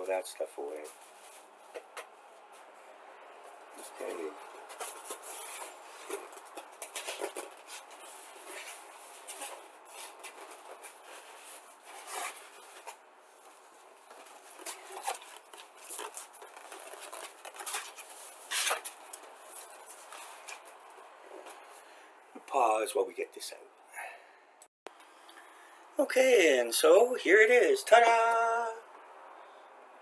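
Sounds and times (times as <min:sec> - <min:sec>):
bubble wrap crinkling: 0:14.3 - 0:20.6.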